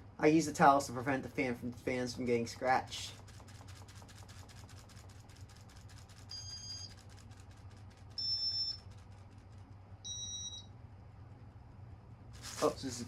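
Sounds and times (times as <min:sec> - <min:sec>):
fan motor low hum: 0:00.0 - 0:13.0
rapid steady ticking: 0:02.6 - 0:10.0
short high beeps: 0:10.1 - 0:10.7.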